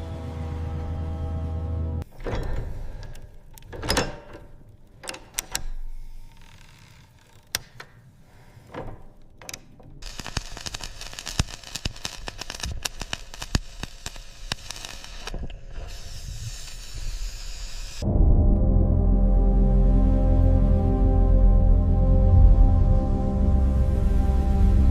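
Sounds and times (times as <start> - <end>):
crackling and clicking: 3.0 - 16.0
hiss: 10.0 - 18.0
ambient music with held tones: 18.0 - 24.9.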